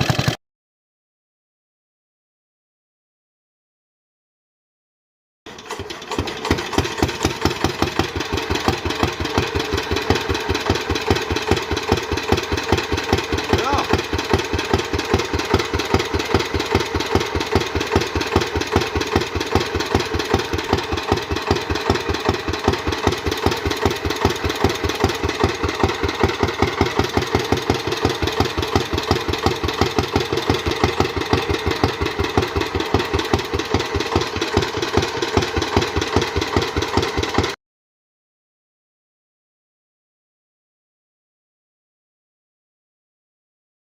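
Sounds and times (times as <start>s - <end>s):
stationary engine exhaust beats: 0.0s - 0.4s, 5.5s - 37.6s.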